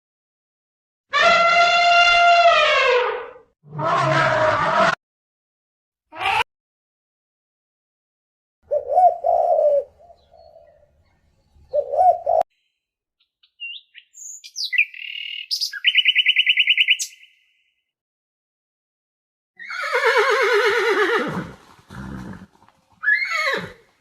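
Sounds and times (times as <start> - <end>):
high bird chirps and trill: 8.7 - 12.5, 13.2 - 17.8
low cooing bird calls: 8.7 - 12.5.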